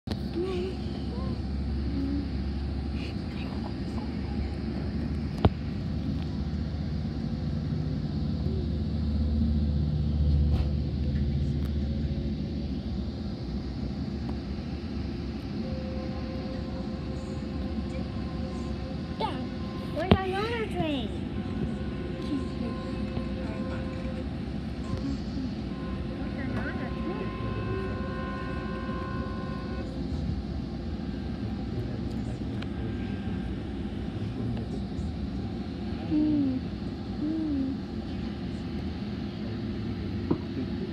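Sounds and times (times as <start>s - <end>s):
train rumble inside coach: 0.0s - 40.9s
locomotive passing: 3.6s - 36.1s
locomotive horn chord: 15.6s - 30.0s.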